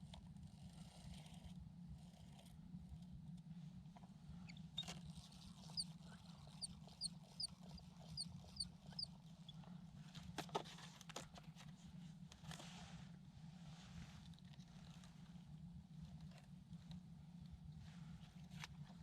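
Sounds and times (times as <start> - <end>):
small bird chirping: 6.5 - 9.1.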